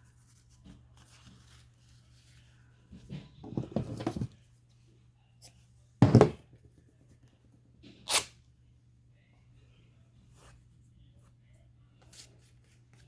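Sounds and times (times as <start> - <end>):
fabric and paper rustling: 0.1 - 3.3.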